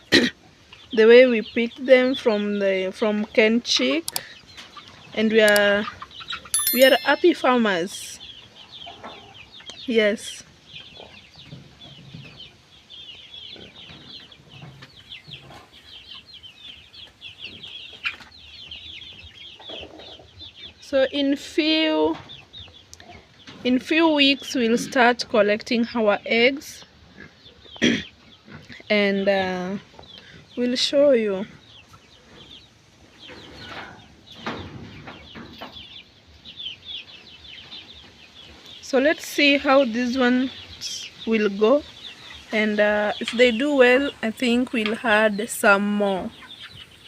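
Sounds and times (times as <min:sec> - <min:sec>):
chicks peeping and cheeping: 0:00.4 - 0:47.0
hens clucking and chirping: 0:08.4 - 0:20.8, 0:25.9 - 0:47.0.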